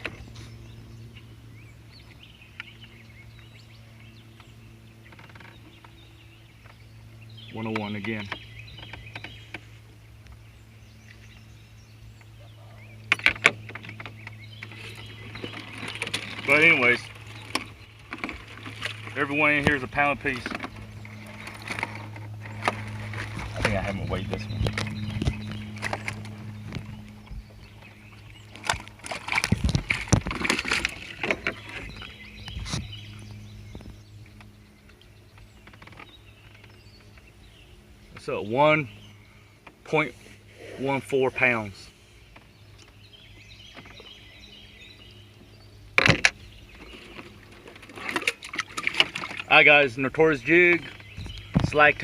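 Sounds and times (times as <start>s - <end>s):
low hum: 0.0s - 52.0s
water sloshing: 12.2s - 52.0s.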